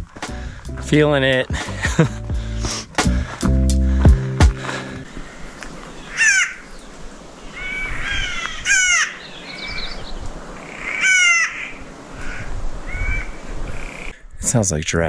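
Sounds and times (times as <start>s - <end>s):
harsh grating bird calls: 5.0s - 14.2s.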